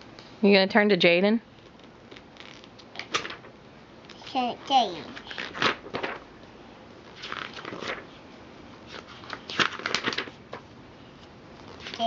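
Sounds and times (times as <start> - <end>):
paper rustling and tapping: 1.6 - 3.5, 5.1 - 6.3, 7.1 - 8.1, 8.9 - 12.0.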